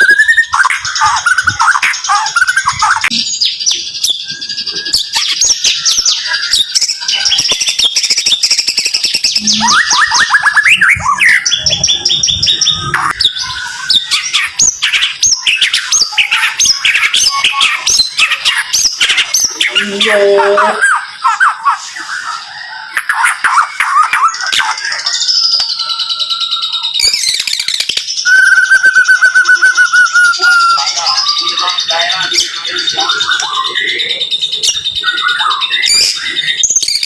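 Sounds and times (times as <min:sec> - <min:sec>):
songbird singing rapid notes: 0:00.0 - 0:26.0.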